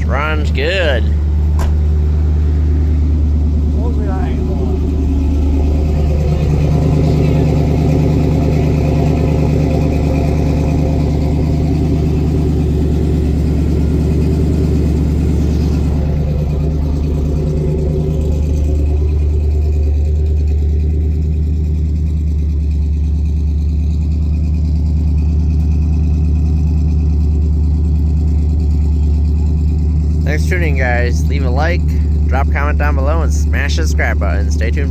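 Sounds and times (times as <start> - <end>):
pickup truck engine idling: 0.0 - 34.9.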